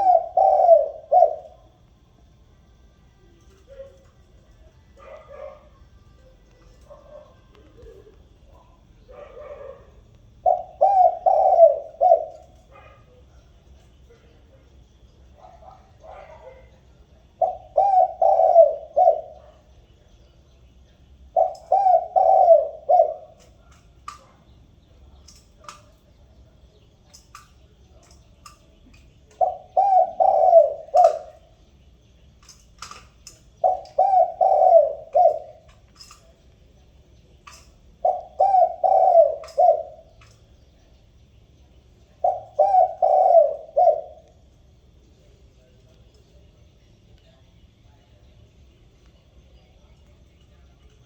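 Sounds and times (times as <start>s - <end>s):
dove cooing: 0.0s - 1.9s, 3.4s - 19.7s, 21.2s - 26.0s, 27.1s - 31.6s, 32.4s - 36.4s, 37.4s - 40.5s, 42.0s - 44.5s.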